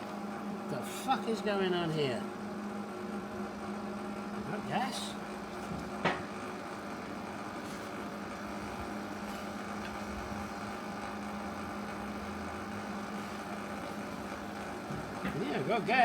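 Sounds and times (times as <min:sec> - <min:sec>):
welder electrical hum: 0:00.0 - 0:16.0.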